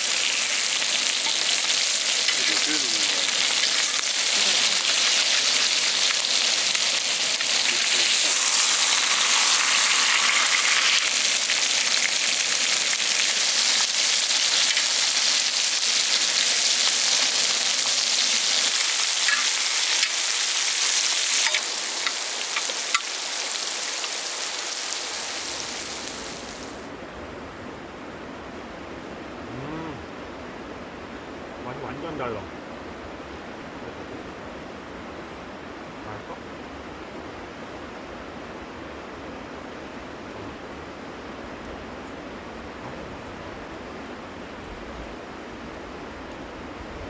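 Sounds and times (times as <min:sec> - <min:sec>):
beef sizzling: 0:00.0 - 0:26.8.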